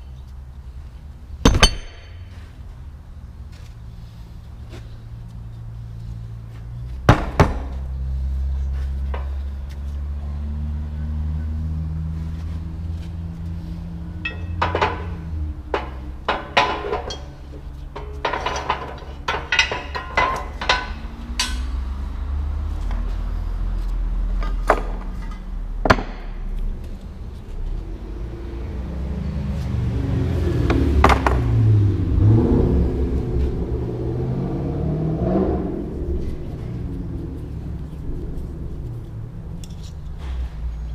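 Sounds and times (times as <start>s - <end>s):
tools striking metal: 1.4s - 2.3s, 14.2s - 17.4s, 18.0s - 21.8s.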